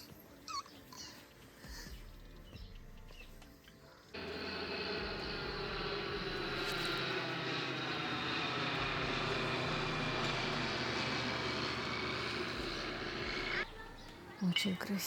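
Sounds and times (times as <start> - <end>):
aircraft engine drone: 4.2 - 14.4.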